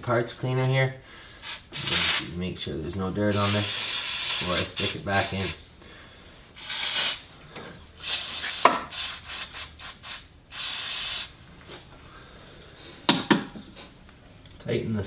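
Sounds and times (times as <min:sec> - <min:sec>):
aerosol spray hissing: 0:01.4 - 0:02.3, 0:03.3 - 0:05.6, 0:06.6 - 0:07.3, 0:08.0 - 0:11.4.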